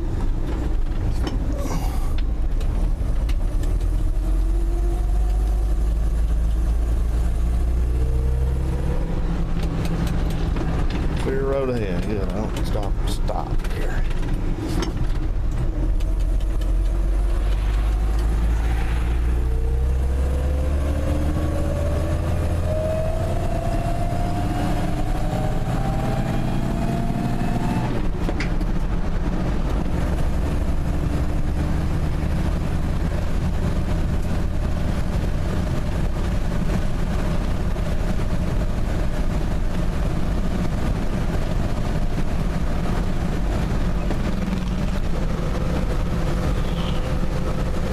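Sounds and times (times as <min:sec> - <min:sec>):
truck engine accelerating: 0:00.0 - 0:47.9
gear change click: 0:13.6 - 0:18.3.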